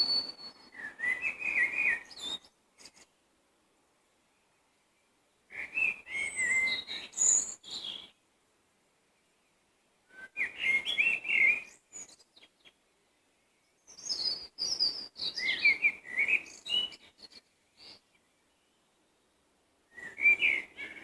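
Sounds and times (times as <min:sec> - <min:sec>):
songbird whistling: 0:00.0 - 0:03.0, 0:05.5 - 0:08.1, 0:10.1 - 0:12.5, 0:13.9 - 0:17.1, 0:19.9 - 0:21.0.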